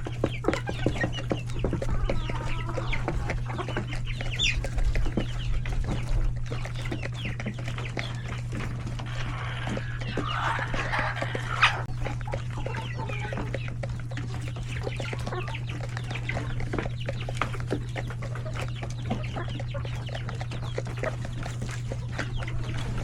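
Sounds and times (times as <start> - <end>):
chickens clucking and cheeping: 0.0 - 23.0
steady low hum: 0.0 - 23.0.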